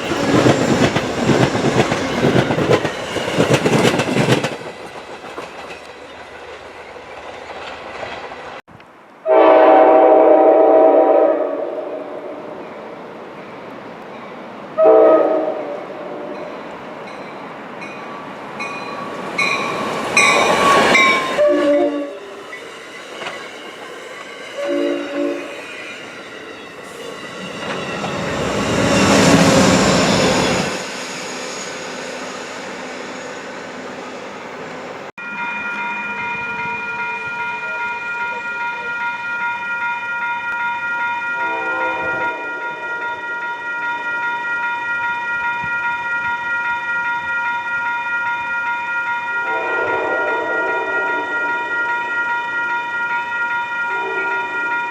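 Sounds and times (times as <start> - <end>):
train wheel and rail noise: 0.0 - 54.9
train horn: 9.2 - 12.6, 14.8 - 16.5, 20.6 - 22.4, 24.5 - 25.8, 41.2 - 43.9, 49.3 - 54.9
steady high ringing: 35.2 - 50.3, 51.0 - 54.9.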